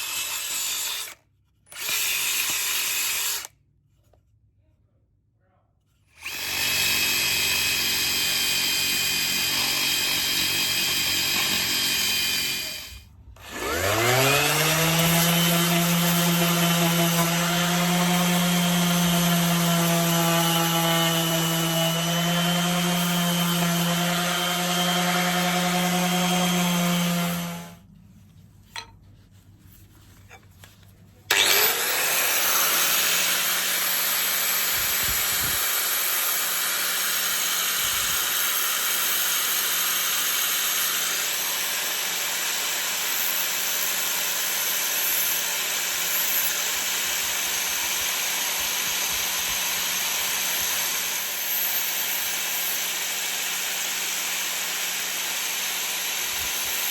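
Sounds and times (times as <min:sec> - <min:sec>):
electric power tool on wood: 0:00.0 - 0:03.5, 0:06.2 - 0:27.8, 0:31.3 - 0:56.9.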